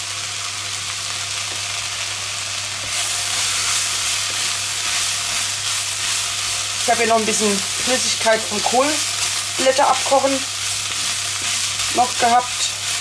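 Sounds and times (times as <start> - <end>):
onions and peppers sizzling: 0.0 - 13.0
wooden spatula stirring: 8.6 - 13.0.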